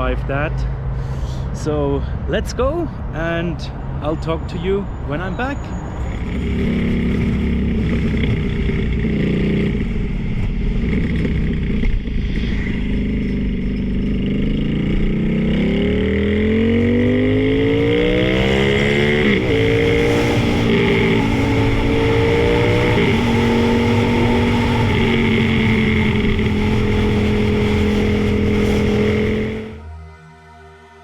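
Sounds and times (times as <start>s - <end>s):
motorcycle engine revving: 5.9s - 29.9s.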